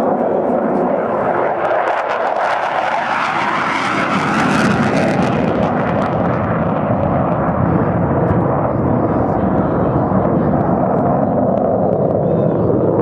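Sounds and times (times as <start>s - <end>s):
jet engine rushing fly-by: 0.0s - 13.0s.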